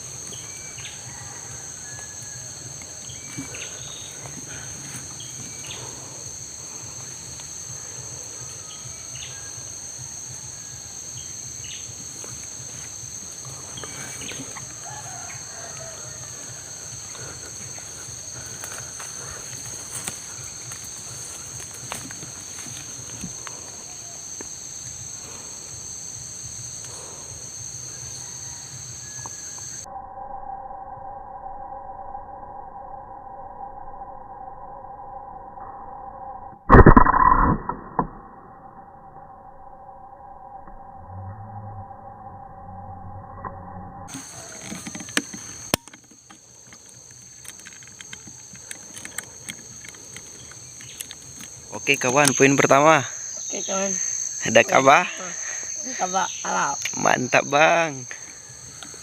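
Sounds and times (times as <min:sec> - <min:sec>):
insect chorus droning: 0:00.0 - 0:59.0
low rumble: 0:40.3 - 0:44.1
faint clicks and rustles: 0:44.1 - 0:51.7.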